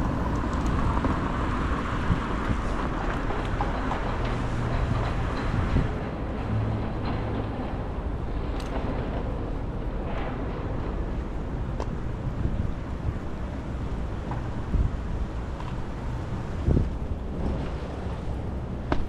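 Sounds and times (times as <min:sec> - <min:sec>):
wind buffeting microphone: 0:00.0 - 0:19.0
wind gust thumping: 0:11.2 - 0:18.2.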